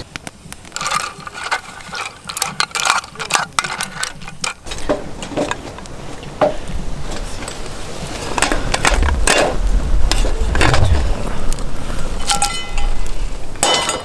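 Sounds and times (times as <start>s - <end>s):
small objects clicking and rustling: 0.0s - 6.3s.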